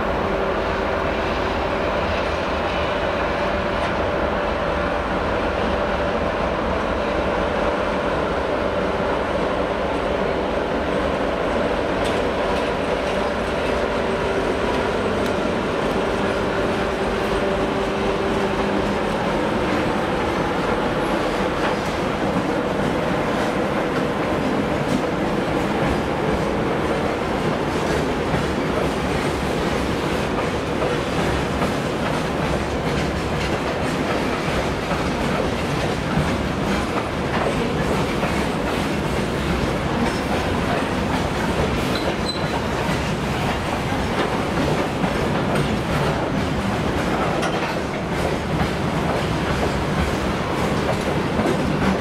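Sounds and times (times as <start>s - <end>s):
train wheels rumbling on rails: 0.0s - 52.0s
wheels clacking over rail joints: 11.5s - 52.0s.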